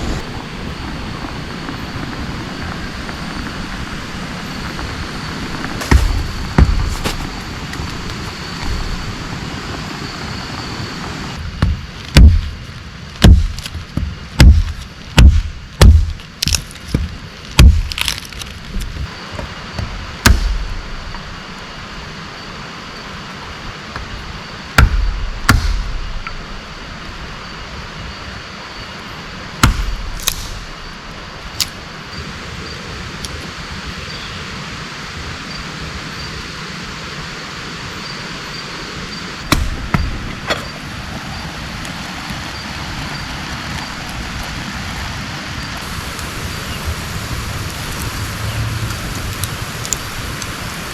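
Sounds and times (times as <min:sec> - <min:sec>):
steady rain hiss: 0:00.0 - 0:50.9
hard knocks: 0:05.8 - 0:07.4, 0:39.5 - 0:40.7.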